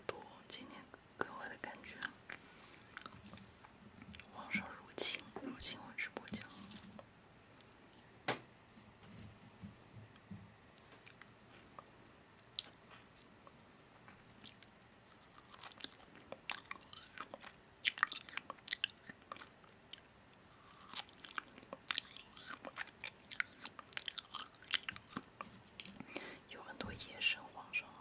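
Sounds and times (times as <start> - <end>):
crunchy chewing of food: 2.0 - 4.3, 10.7 - 26.2.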